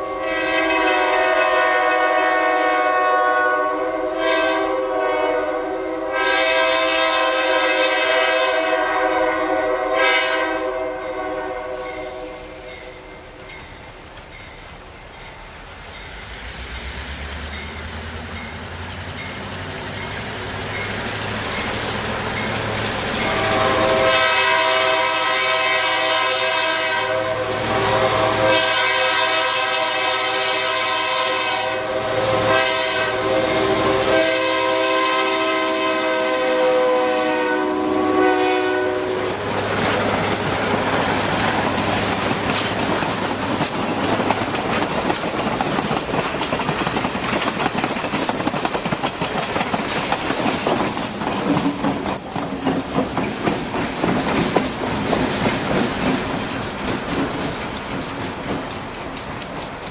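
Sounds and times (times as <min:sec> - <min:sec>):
multi-note train air horn: 0:00.0 - 0:12.7, 0:23.1 - 0:39.8
diesel locomotive engine: 0:00.0 - 0:59.9
train wheel and rail noise: 0:00.0 - 0:59.9.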